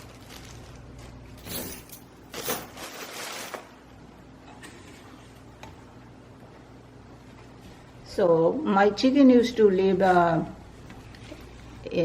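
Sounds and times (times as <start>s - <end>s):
rustling and handling items: 0.0s - 3.8s, 10.7s - 11.8s.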